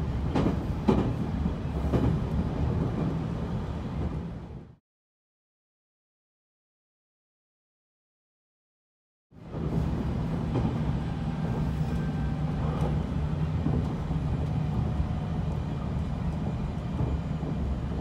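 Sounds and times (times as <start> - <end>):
train rumbling: 0.0 - 4.8, 9.4 - 18.0.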